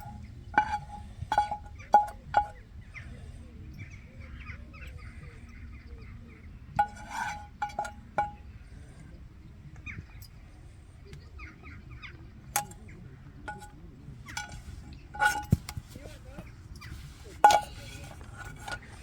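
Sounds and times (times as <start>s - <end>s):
metal cookware clinking: 0.0s - 2.7s, 6.8s - 8.6s, 12.6s - 12.9s, 13.5s - 19.0s.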